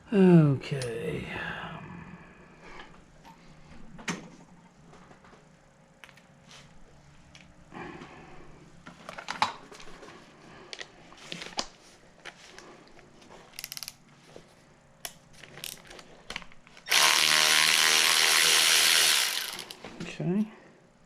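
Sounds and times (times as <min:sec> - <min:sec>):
small metal parts clicking: 0:13.5 - 0:14.0
power tool ratcheting clatter: 0:16.9 - 0:19.8.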